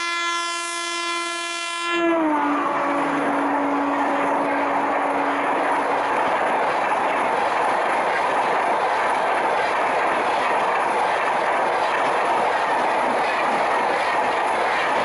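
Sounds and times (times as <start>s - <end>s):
train horn: 0.0s - 5.6s
train wheels clacking on rails: 2.8s - 15.0s.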